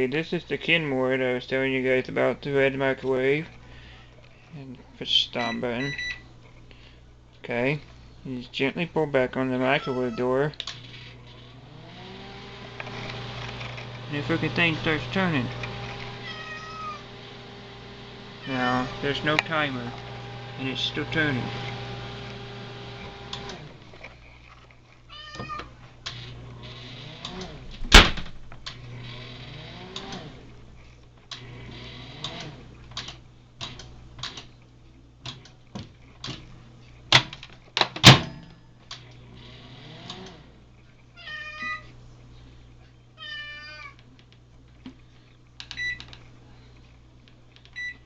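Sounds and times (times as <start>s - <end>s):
cat meowing: 9.6s - 10.3s, 16.2s - 17.0s, 18.4s - 18.9s, 25.1s - 25.7s, 41.2s - 41.9s, 43.2s - 44.0s
microwave humming: 10.6s - 24.0s, 25.7s - 34.6s.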